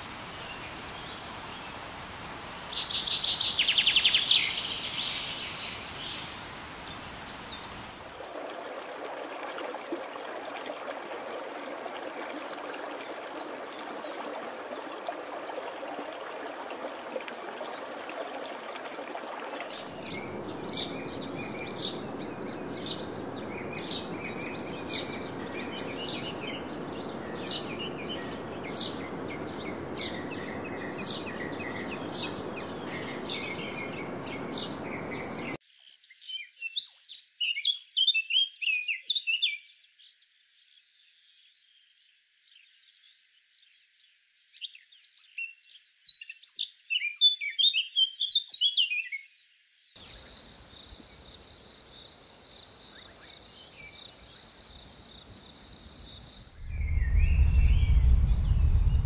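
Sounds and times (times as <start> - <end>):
flowing water: 0.0 - 35.6, 56.5 - 59.0
birds chirping: 19.2 - 35.6, 52.8 - 59.0
rapid high bird twittering: 19.6 - 35.6, 56.1 - 59.0.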